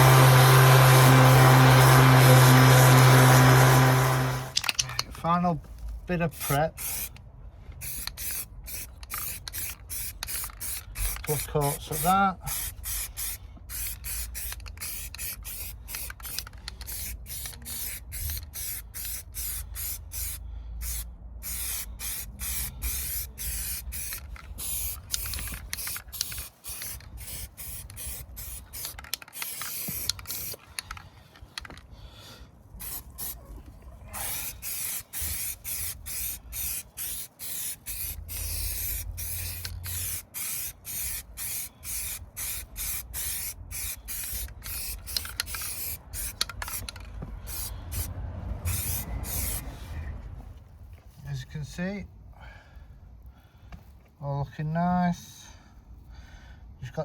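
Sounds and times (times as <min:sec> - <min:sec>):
spray paint hissing: 0:00.0 - 0:04.8, 0:06.2 - 0:07.2, 0:07.8 - 0:31.0, 0:32.8 - 0:33.4, 0:34.1 - 0:50.0.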